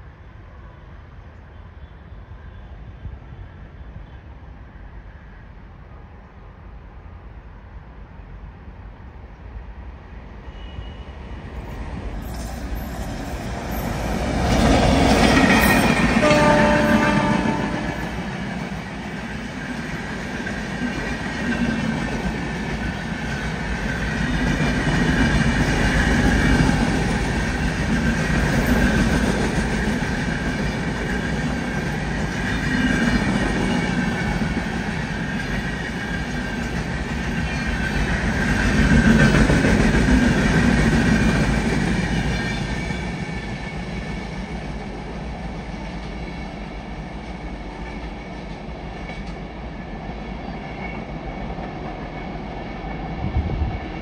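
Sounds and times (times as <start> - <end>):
train wheels rumbling and clattering: 11.4 - 54.0.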